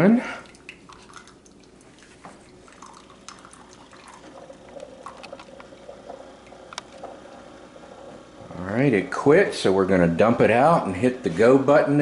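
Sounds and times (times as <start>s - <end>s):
water trickling into mug: 0.4s - 8.5s.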